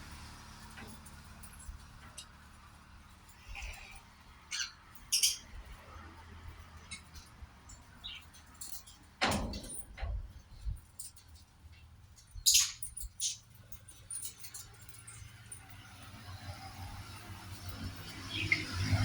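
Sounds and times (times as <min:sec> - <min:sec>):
parrots high-pitched calls: 0:04.5 - 0:05.5.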